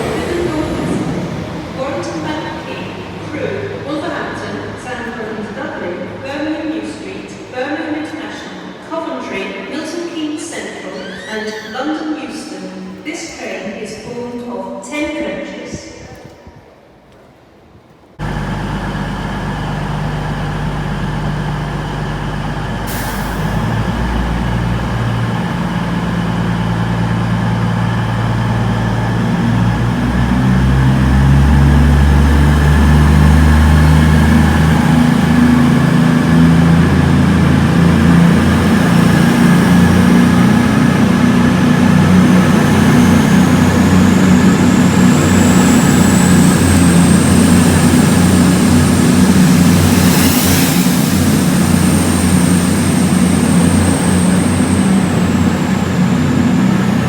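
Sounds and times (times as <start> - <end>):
diesel train engine revving: 0.0 - 5.3, 18.2 - 57.0
high whine: 18.2 - 30.3, 34.5 - 57.0.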